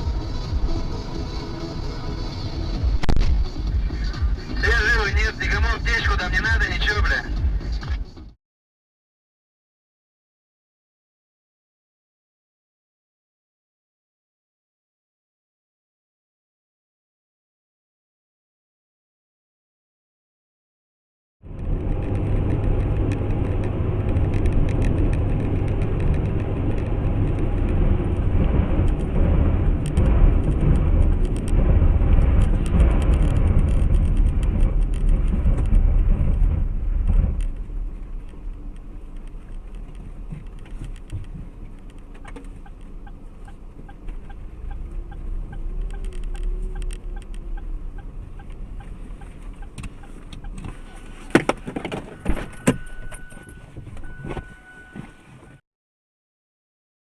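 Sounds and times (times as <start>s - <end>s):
car engine and road rumble: 0.0s - 8.4s, 21.4s - 55.6s.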